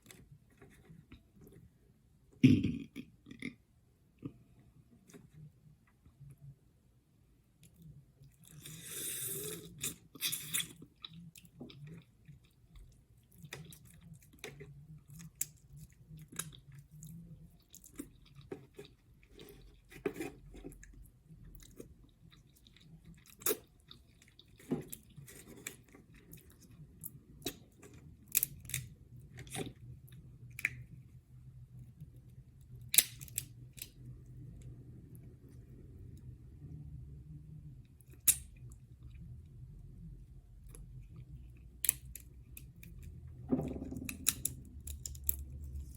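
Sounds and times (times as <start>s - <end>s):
chewing seafood: 7.6s - 34.7s.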